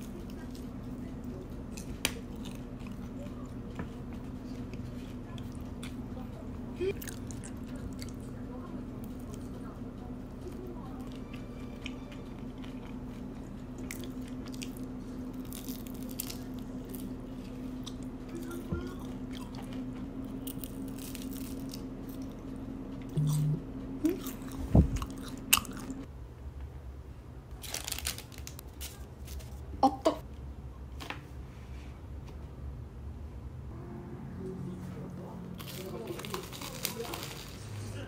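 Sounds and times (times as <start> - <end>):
crisp biting and chewing: 1.7 - 3.1, 11.0 - 18.2, 20.3 - 22.4, 24.1 - 26.1, 35.6 - 37.8
small crunches: 13.8 - 18.0, 35.6 - 37.9.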